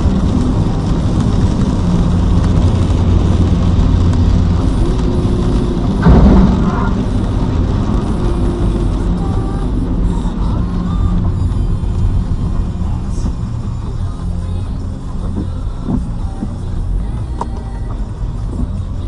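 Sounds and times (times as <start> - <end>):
car road and engine rumble: 0.0 - 19.0
sudden loud noise: 4.5 - 10.1.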